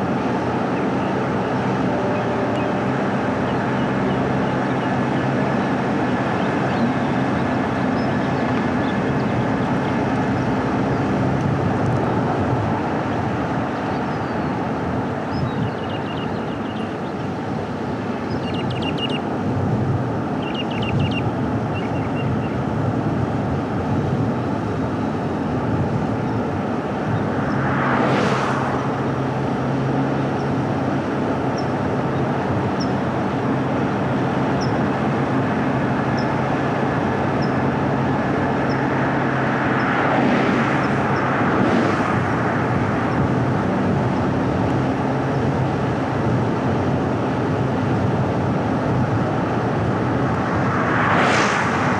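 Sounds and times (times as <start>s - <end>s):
car engine and road noise: 0.0s - 51.9s
vehicles passing: 0.0s - 51.9s
bird chirps: 15.3s - 17.2s, 18.2s - 19.2s, 20.4s - 22.6s.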